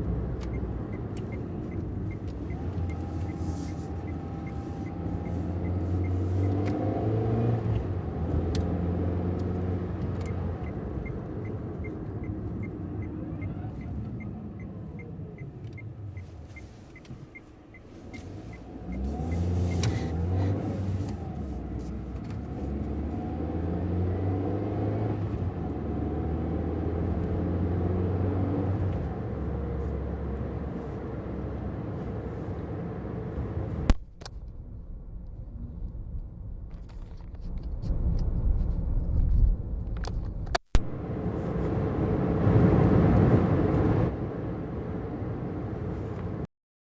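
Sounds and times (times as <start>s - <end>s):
light regular ticking: 0.0s - 6.7s, 9.3s - 20.2s
car engine revving: 0.0s - 45.5s.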